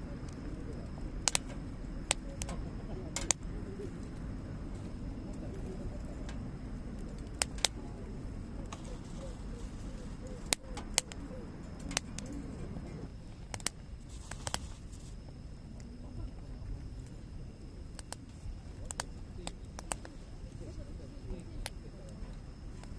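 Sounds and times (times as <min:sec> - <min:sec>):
low rumble of burning: 0:00.0 - 0:22.9
wood fire crackling: 0:00.0 - 0:22.9
sharp fire pops: 0:00.2 - 0:04.2, 0:07.0 - 0:07.9, 0:10.3 - 0:12.4, 0:13.4 - 0:14.8, 0:17.9 - 0:20.2.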